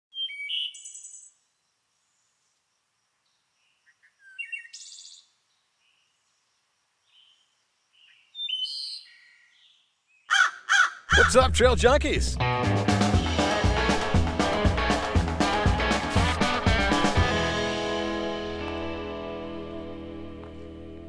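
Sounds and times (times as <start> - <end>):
songbirds chirping and trilling: 0.1 - 11.2.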